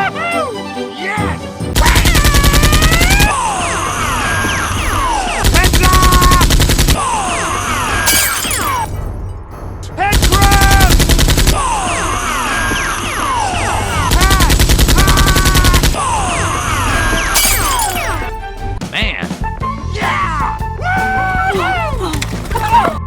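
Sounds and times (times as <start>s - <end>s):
background music: 0.0s - 23.0s
rapid automatic gunfire: 1.8s - 3.4s, 5.4s - 7.2s, 10.1s - 12.0s, 13.9s - 16.0s.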